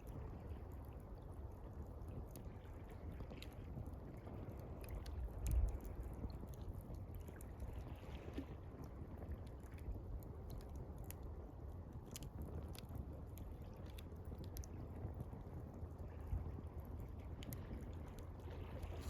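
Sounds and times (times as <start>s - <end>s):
water lapping: 16.2s - 19.0s.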